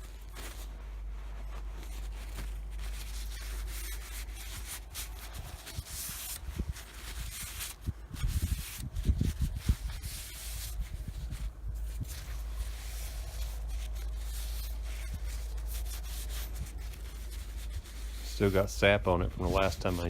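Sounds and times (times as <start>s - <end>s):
rubbing strokes along blade: 12.2s - 20.0s.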